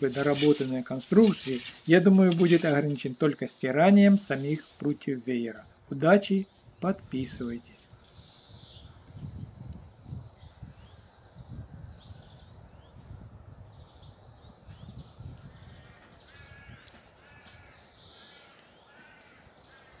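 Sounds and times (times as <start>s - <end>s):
birds chirping: 0.0s - 20.0s
wind on microphone: 6.6s - 17.7s.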